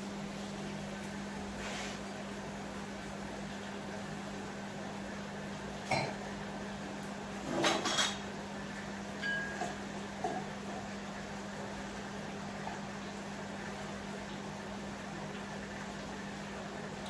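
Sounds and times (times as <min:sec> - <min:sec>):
utensils clinking on dishes: 0:09.2 - 0:09.8.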